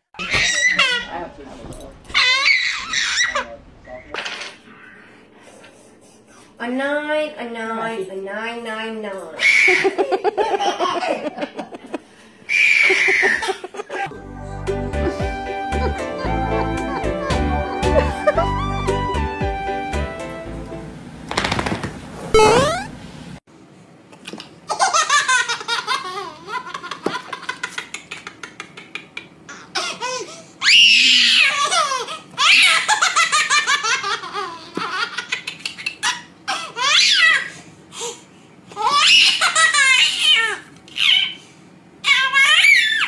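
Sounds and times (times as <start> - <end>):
baby laughing: 0.2 - 1.2, 12.7 - 14.1, 15.1 - 18.8, 24.7 - 30.4, 31.1 - 37.6, 38.7 - 41.4.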